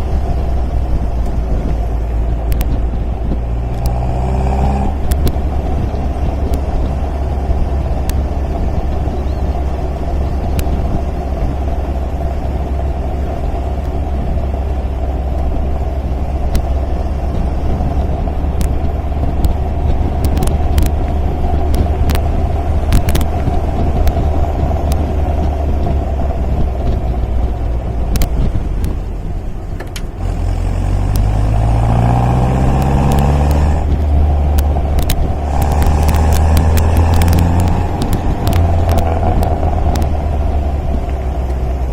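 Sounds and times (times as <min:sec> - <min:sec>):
car engine running: 0:00.0 - 0:41.9
faint clicks: 0:33.8 - 0:40.2.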